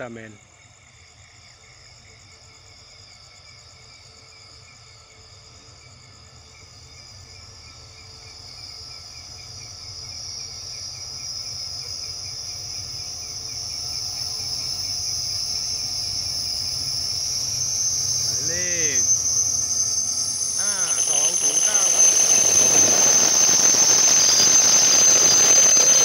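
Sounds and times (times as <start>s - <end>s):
crickets chirping: 0.0s - 26.0s
high steady squeal: 6.2s - 26.0s
train rumble: 10.6s - 26.0s.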